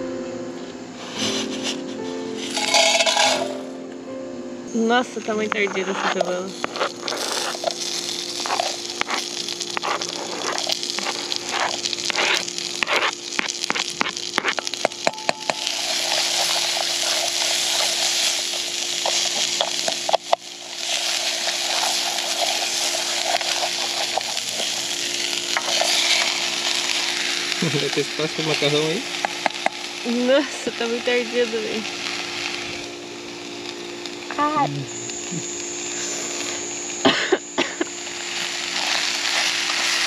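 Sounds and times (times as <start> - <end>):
food sizzling in a pot: 1.0 - 40.0
wooden spoon stirring: 2.4 - 3.5, 5.8 - 27.2
spoon tapping a pot: 14.8 - 15.8.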